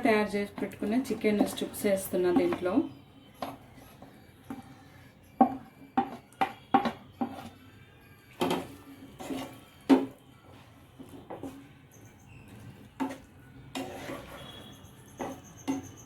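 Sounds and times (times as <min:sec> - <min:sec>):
spatula scraping a pan: 0:00.0 - 0:07.6, 0:08.4 - 0:16.0
food stirred in thick sauce: 0:08.4 - 0:15.9.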